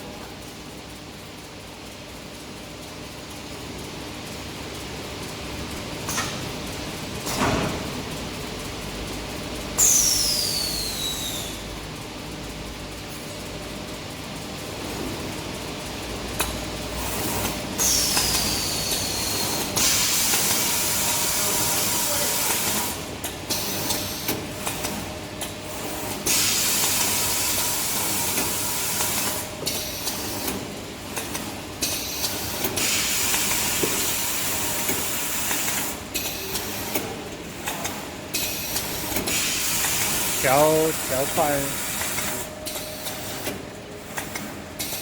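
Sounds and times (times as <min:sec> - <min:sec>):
steady machine hum: 0:40.1 - 0:42.6.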